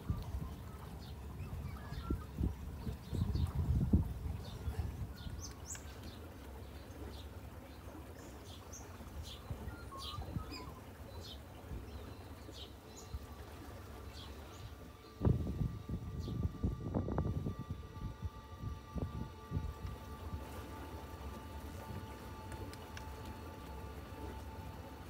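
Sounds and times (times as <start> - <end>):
birds chirping: 0.0 - 25.0
low rumble: 14.8 - 25.0.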